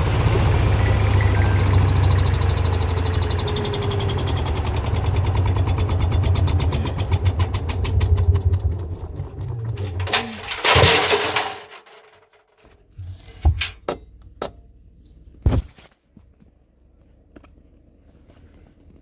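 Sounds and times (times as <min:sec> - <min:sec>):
washing machine running: 0:00.0 - 0:12.2.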